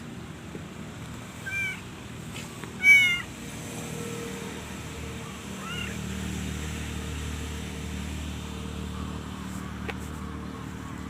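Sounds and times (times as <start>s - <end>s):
cat meowing: 1.4s - 1.8s, 2.8s - 3.3s, 5.6s - 6.0s.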